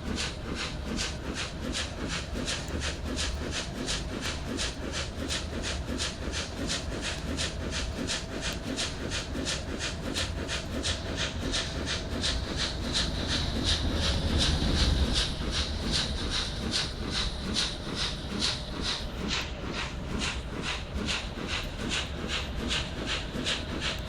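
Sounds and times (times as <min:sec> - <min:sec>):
rhythmic rail clicking: 0:00.0 - 0:24.0
train rumble: 0:00.0 - 0:24.0.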